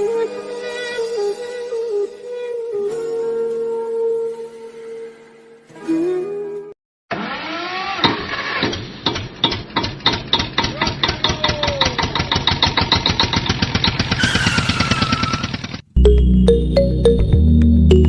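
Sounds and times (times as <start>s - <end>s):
tractor engine chugging: 9.0s - 15.9s.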